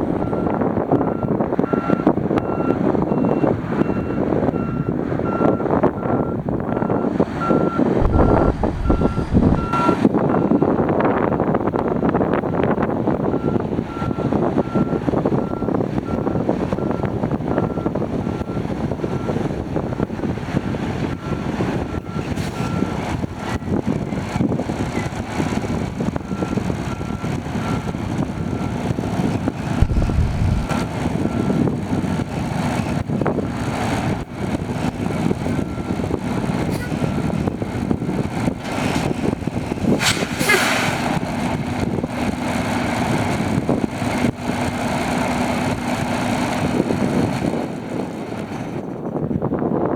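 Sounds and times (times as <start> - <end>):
truck diesel engine running: 3.9 - 11.4, 23.0 - 40.0, 41.0 - 49.2
short beeps: 7.5 - 10.0, 29.8 - 30.7.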